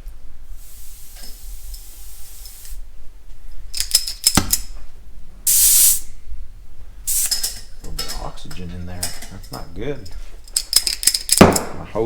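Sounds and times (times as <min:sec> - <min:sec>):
gas torch hissing: 0:00.0 - 0:03.0, 0:05.4 - 0:06.3, 0:07.0 - 0:08.2
sharp metallic clicks and clinks: 0:03.8 - 0:04.7, 0:09.0 - 0:11.8.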